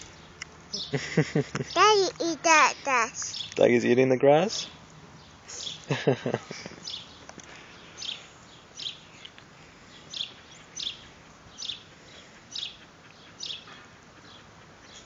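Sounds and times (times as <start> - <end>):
bird chirping: 0.0 - 1.0, 1.7 - 3.7, 7.9 - 9.3, 9.9 - 15.0.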